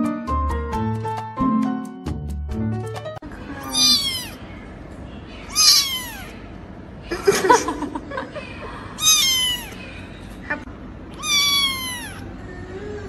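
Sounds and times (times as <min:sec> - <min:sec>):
kitten meowing: 0:03.6 - 0:04.4, 0:05.5 - 0:06.4, 0:09.0 - 0:09.8, 0:11.1 - 0:12.3.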